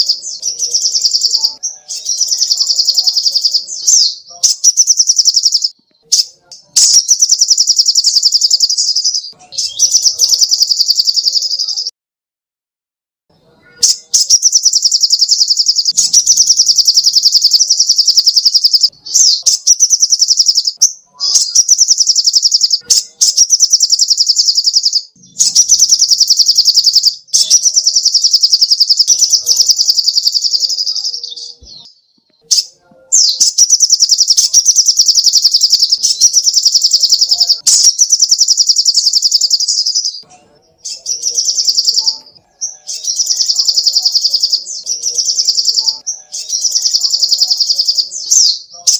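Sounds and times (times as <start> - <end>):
bird singing fast high trills: 13.8 - 31.6, 33.2 - 40.2.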